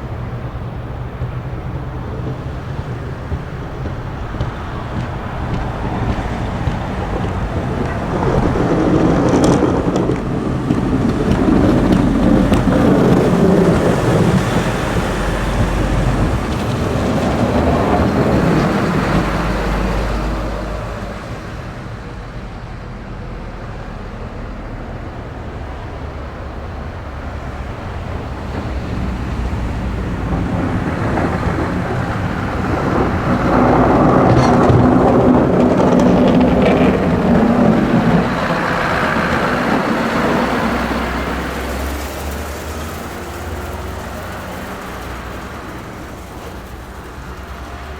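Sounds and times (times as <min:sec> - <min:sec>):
snow-plow trucks driving past: 0:00.0 - 0:47.9.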